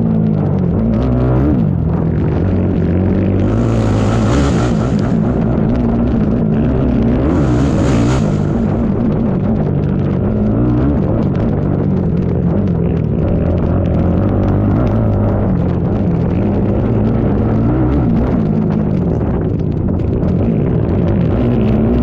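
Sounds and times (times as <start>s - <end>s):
atv engine revving: 0.0s - 22.0s
rushes of hiss: 7.3s - 8.8s.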